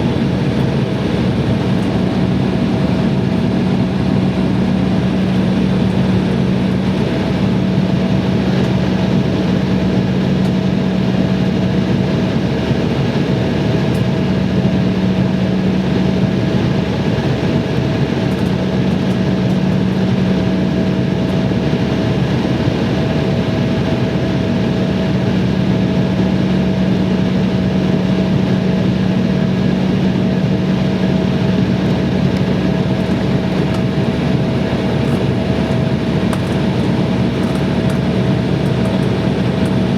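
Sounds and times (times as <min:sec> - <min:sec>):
airliner engines droning: 0:00.0 - 0:39.9
low hum: 0:31.9 - 0:39.9.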